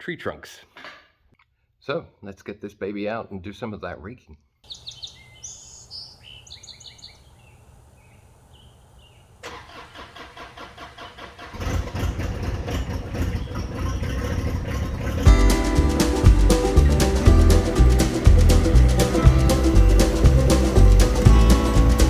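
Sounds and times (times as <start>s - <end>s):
birds chirping: 4.7s - 9.4s, 13.2s - 22.0s
tractor diesel engine starting: 9.4s - 22.0s
low hum: 15.3s - 22.0s.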